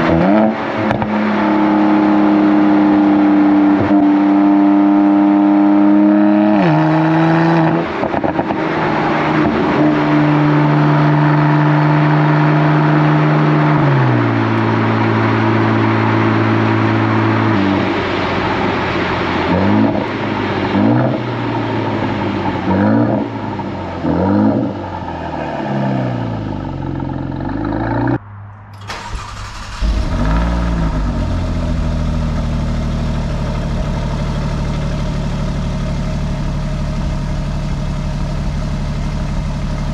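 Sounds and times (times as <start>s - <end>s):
car exhaust while driving: 0.0s - 39.9s
car engine cold start and idle: 28.6s - 39.9s.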